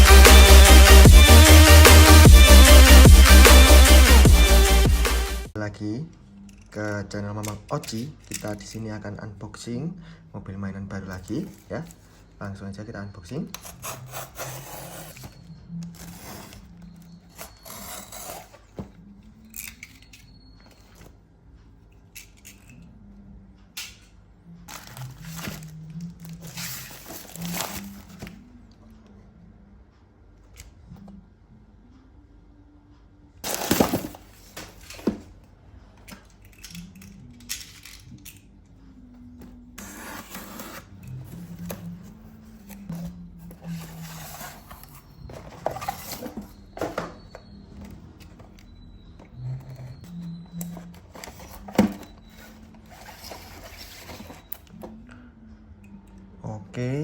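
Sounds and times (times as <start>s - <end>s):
faint background music: 4.2s - 57.0s
packaging rustling and tearing: 24.7s - 28.4s, 33.4s - 35.2s.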